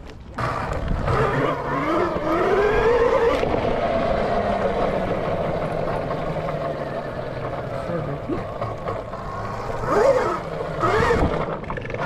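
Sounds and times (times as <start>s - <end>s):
dirt bike engine accelerating: 0.3s - 12.0s.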